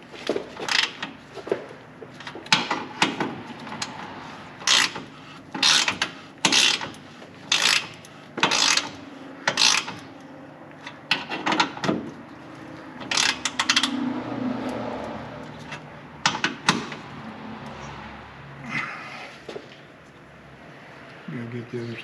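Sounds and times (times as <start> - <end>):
ratchet wrench clicking: 4.6 - 10.1, 13.0 - 14.0.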